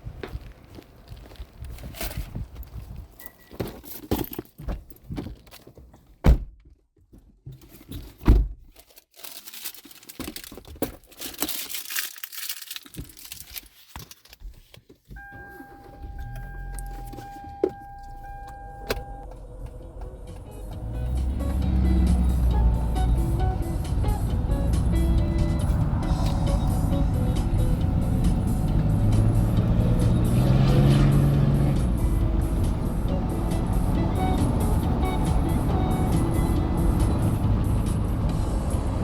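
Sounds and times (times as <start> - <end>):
rustling: 7.6 - 18.2
car doors shutting: 15.2 - 37.7
car engine idling: 16.0 - 39.0.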